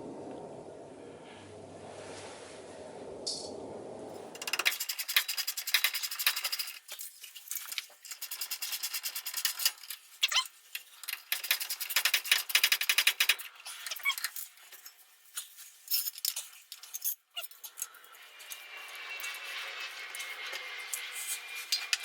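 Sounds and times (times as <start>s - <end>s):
hand tools clicking on metal: 4.4s - 14.8s.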